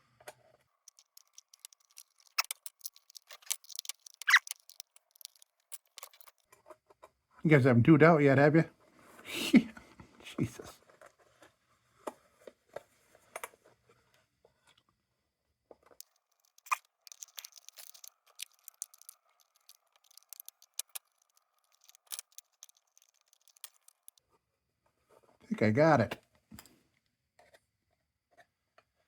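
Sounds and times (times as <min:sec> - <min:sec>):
lantern parts clicking and scraping: 0:00.9 - 0:06.4, 0:16.0 - 0:24.2.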